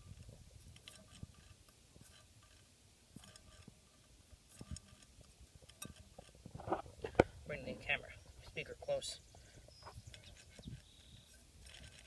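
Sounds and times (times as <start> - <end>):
motor spun by hand grinding: 0.0 - 7.2, 10.0 - 12.0.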